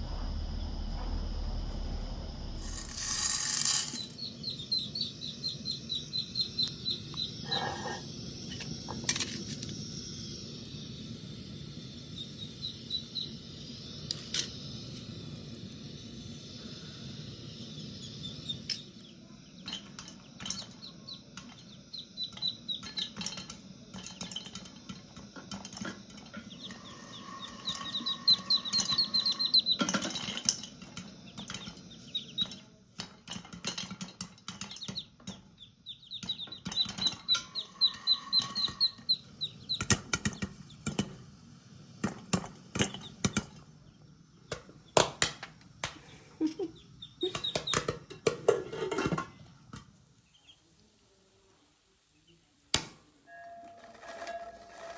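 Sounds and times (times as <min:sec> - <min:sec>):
corn kernels popping: 0:02.6 - 0:10.8, 0:12.1 - 0:50.0, 0:52.7 - 0:54.9
bird chirping: 0:03.9 - 0:08.6, 0:26.5 - 0:30.4, 0:31.2 - 0:32.7, 0:34.5 - 0:40.9, 0:46.0 - 0:48.1, 0:50.2 - 0:50.7.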